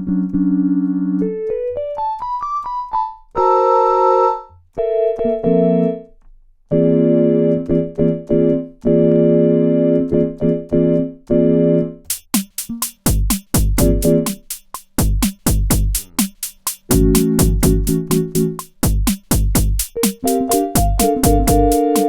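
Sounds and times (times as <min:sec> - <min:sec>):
piano keyboard notes and chords: 0:00.0 - 0:12.1, 0:16.9 - 0:18.6, 0:20.0 - 0:22.0.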